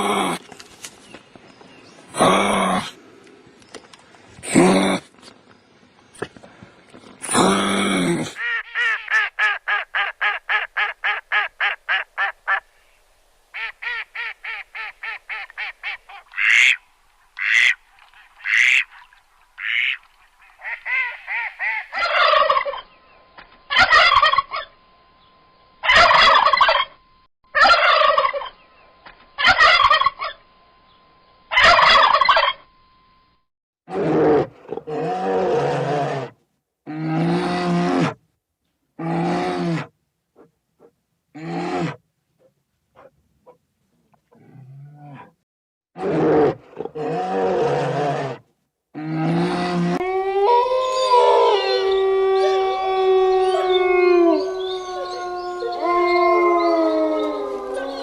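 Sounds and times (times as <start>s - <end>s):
faint steady tone: 12.7s - 33.5s
farm birds calling: 13.6s - 23.0s, 23.7s - 24.8s, 25.8s - 27.0s, 27.6s - 30.4s, 31.5s - 32.6s.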